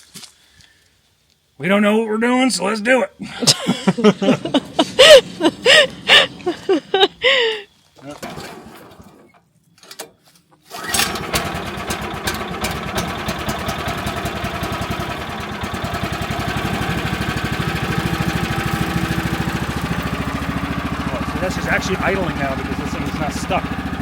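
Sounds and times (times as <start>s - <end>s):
gas engine starting and idling: 3.8s - 9.5s, 10.7s - 24.0s.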